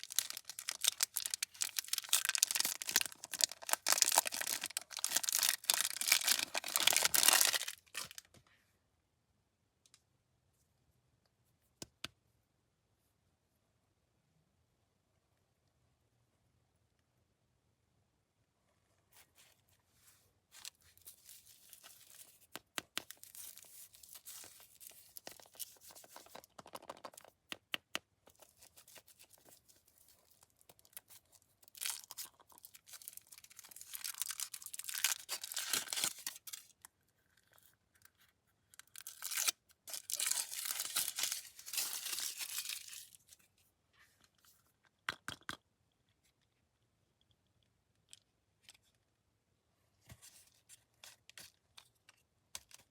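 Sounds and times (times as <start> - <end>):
candy wrappers tearing and crinkling: 0.0 - 8.2, 20.6 - 27.3, 28.4 - 36.8, 38.7 - 43.4.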